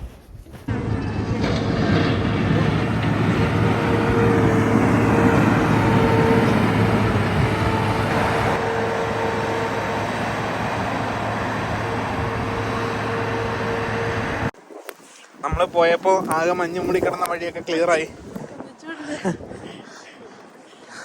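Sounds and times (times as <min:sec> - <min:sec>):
truck engine running: 0:00.7 - 0:14.6.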